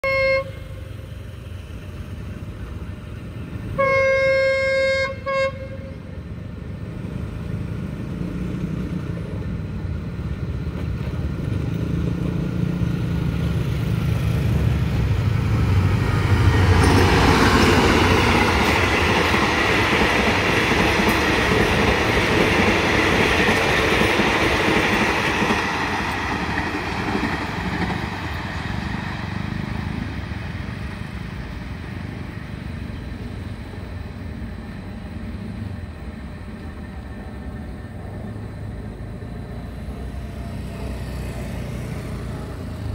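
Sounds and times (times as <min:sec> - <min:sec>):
locomotive horn blast: 0:00.0 - 0:01.0, 0:03.7 - 0:06.2
train wheel and carriage noise: 0:00.0 - 0:42.9.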